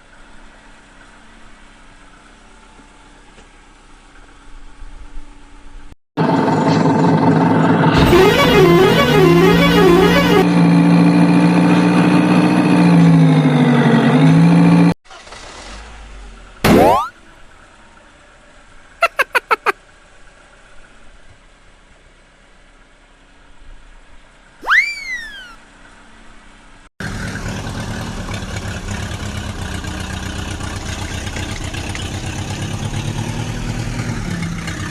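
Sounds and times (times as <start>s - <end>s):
siren-like wail: 8.0s - 10.4s, 24.6s - 25.6s
toy engine drone: 24.6s - 25.6s.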